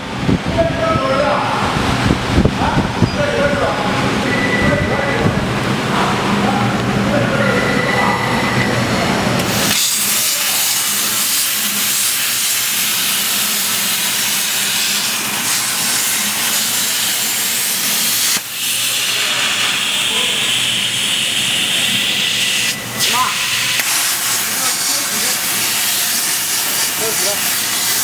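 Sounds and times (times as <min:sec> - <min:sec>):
plasma torch hissing: 0:09.4 - 0:28.0.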